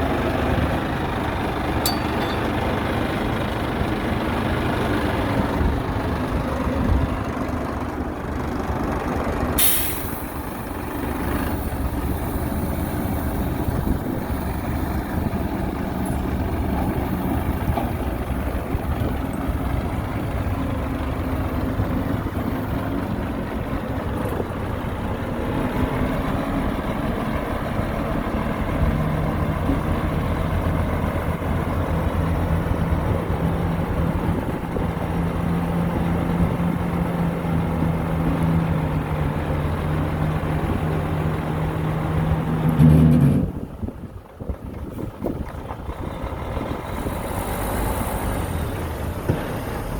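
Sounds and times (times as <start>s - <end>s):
heavy machinery diesel engines: 0.0s - 49.9s
air brake hiss: 9.6s - 10.6s.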